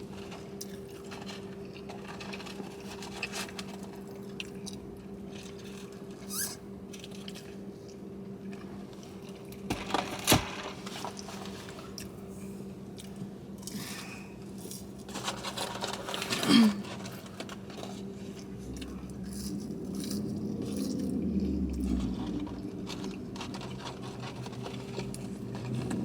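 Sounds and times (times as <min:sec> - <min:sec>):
low electrical hum: 0:00.0 - 0:26.0
food wrappers rustling: 0:00.1 - 0:07.7, 0:08.6 - 0:13.2, 0:13.8 - 0:26.0
chewing: 0:17.8 - 0:26.0.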